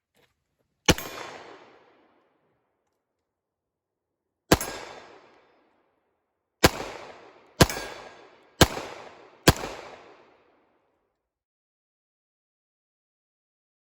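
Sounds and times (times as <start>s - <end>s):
gunshots ringing out: 0.9s - 2.1s, 4.5s - 5.5s, 6.6s - 10.5s.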